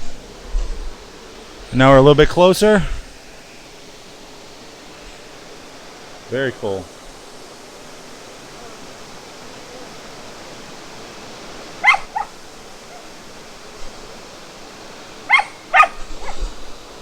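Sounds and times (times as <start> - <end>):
waterfall rushing: 10.0 - 13.2, 14.3 - 16.3
dog barking in short yips: 11.8 - 12.3.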